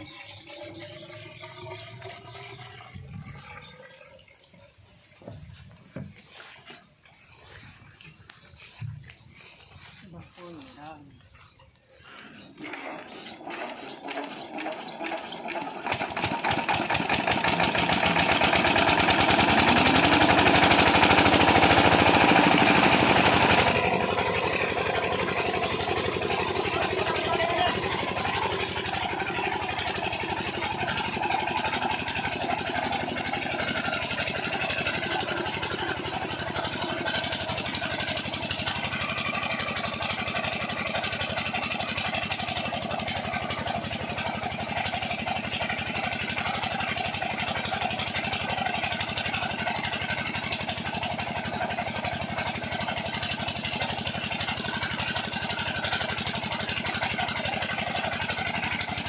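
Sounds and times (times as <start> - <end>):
diesel pump engine running: 0.0 - 59.0.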